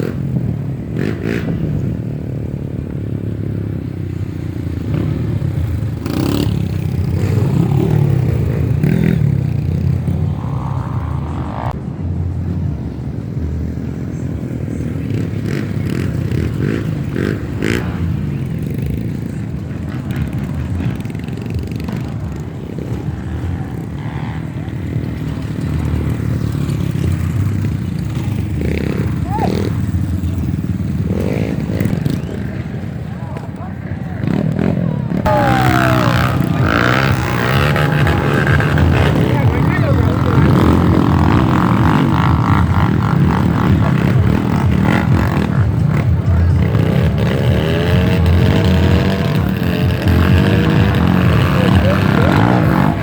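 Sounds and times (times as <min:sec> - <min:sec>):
motorcycle engine revving: 0:00.0 - 0:11.8, 0:14.6 - 0:32.8, 0:34.2 - 0:53.0
motorcycle engine running: 0:34.2 - 0:53.0.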